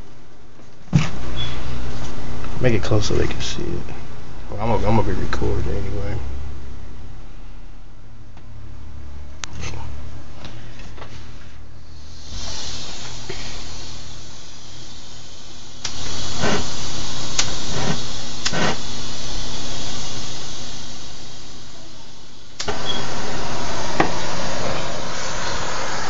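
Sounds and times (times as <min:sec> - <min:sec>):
gas torch hissing: 0:10.7 - 0:26.0.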